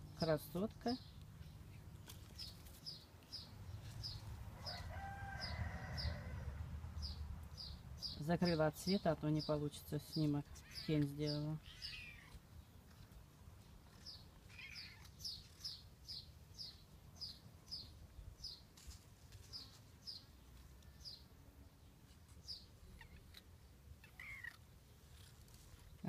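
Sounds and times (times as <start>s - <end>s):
bird chirping: 7.0s - 18.6s.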